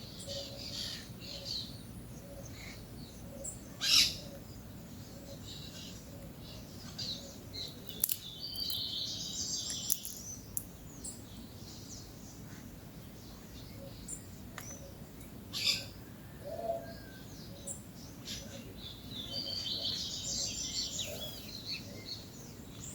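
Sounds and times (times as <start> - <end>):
birds chirping and calling: 0.1 - 22.9
sharp clicks and taps: 7.9 - 8.8, 9.7 - 10.7.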